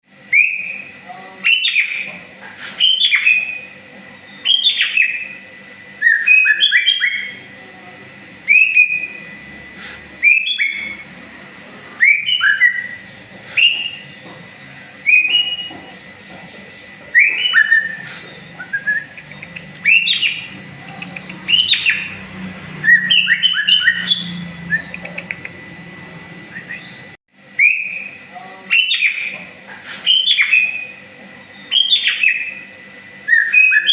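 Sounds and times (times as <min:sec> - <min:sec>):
songbird singing whistled phrases: 0:00.3 - 0:02.1, 0:02.8 - 0:03.7, 0:04.3 - 0:05.4, 0:06.0 - 0:07.4, 0:08.1 - 0:09.2, 0:10.2 - 0:11.0, 0:12.0 - 0:13.0, 0:13.6 - 0:14.2, 0:15.0 - 0:15.7, 0:17.1 - 0:18.0, 0:18.6 - 0:20.6, 0:21.2 - 0:27.0, 0:27.6 - 0:29.4, 0:30.0 - 0:32.6, 0:33.2 - 0:33.9.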